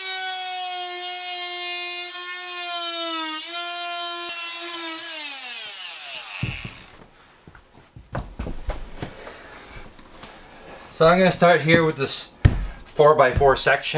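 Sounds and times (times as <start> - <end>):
oscillating multi-tool whining: 0.0 - 7.0.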